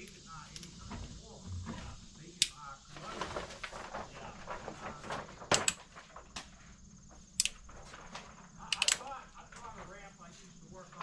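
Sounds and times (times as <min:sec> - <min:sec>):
low background noise: 0:00.0 - 0:11.0
sharp clicks: 0:02.4 - 0:02.7, 0:07.4 - 0:07.6, 0:08.6 - 0:09.2.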